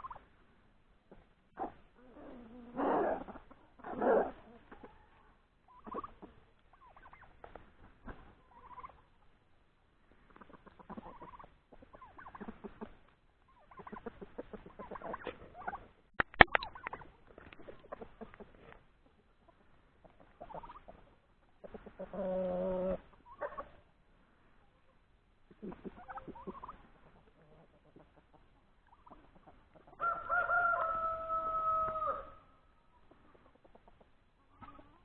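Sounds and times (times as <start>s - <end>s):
turkeys gobbling: 0.0s - 0.4s, 1.1s - 9.4s, 10.2s - 24.0s, 24.6s - 35.0s
chickens clucking: 0.0s - 35.0s
sharp clicks: 16.2s - 17.0s.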